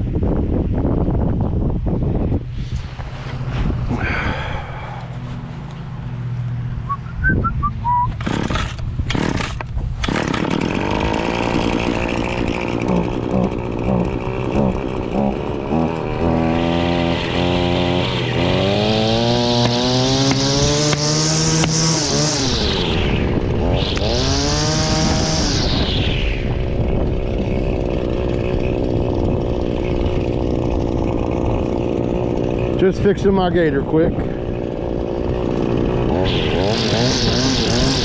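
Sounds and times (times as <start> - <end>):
string trimmer engine revving: 3.3 - 7.2, 7.8 - 38.0
starter cord pulls: 8.0 - 15.1.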